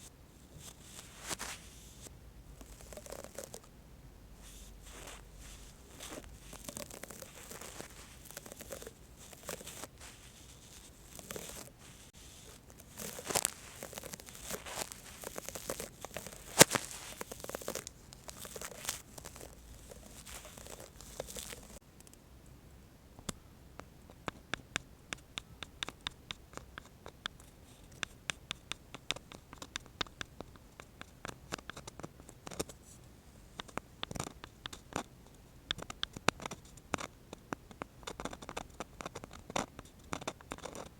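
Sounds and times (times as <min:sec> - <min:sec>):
brush scratching and rustling: 0:00.4 - 0:03.6, 0:04.4 - 0:21.8.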